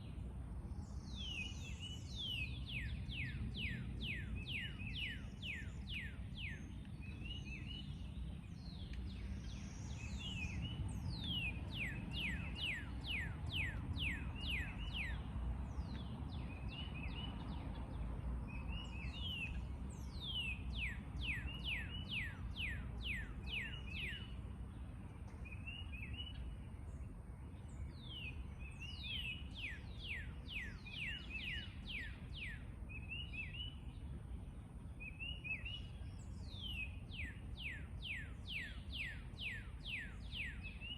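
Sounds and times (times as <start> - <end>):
songbirds whistling and chirping: 0.0 - 40.9.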